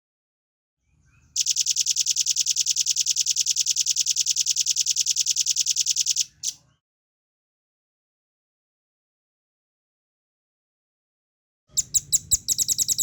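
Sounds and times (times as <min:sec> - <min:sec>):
bird fast high trill: 0:01.4 - 0:06.6, 0:11.7 - 0:13.0.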